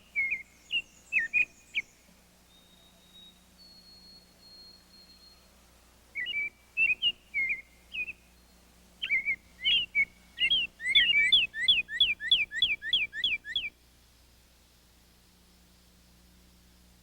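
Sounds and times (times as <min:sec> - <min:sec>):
songbird whistling: 0:00.0 - 0:05.5, 0:06.2 - 0:13.8.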